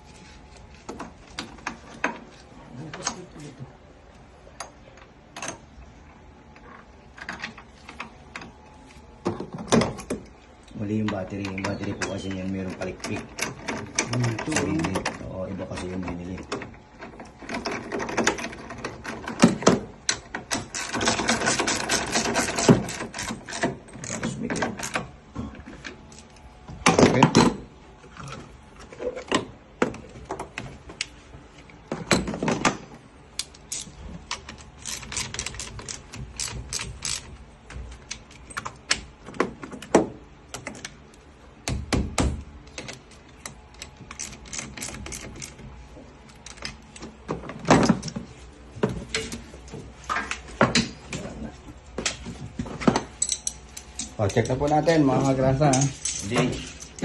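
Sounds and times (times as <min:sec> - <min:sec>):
clicks and knocks on car parts: 0:41.6 - 0:44.1.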